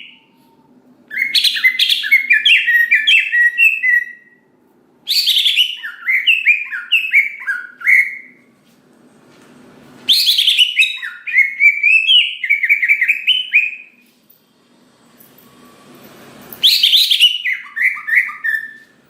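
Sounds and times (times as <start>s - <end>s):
bird singing whistled notes: 1.1s - 4.4s, 5.1s - 8.4s, 10.1s - 14.0s, 16.6s - 18.9s.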